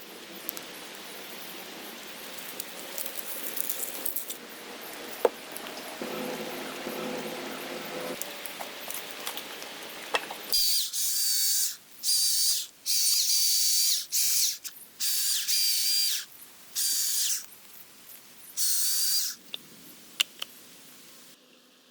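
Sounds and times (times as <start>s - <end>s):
rasping ratchet-like strokes with whine: 10.5s - 17.5s.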